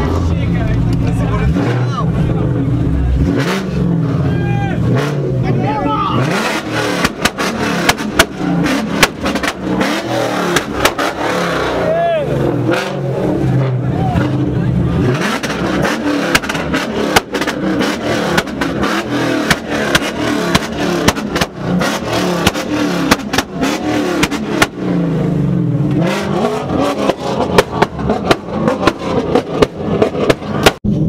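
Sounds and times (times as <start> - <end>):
car engines revving: 0.0 - 31.0
sharp exhaust pops: 6.5 - 11.2, 15.2 - 24.9, 26.9 - 31.0.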